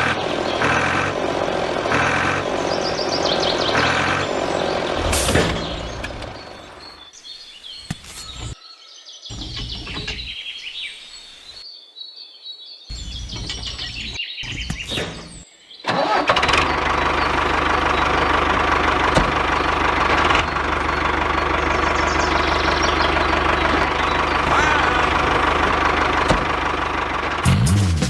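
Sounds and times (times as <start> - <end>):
engine running loudly: 0.0 - 7.0, 15.9 - 28.0
bird chirps: 0.0 - 27.4.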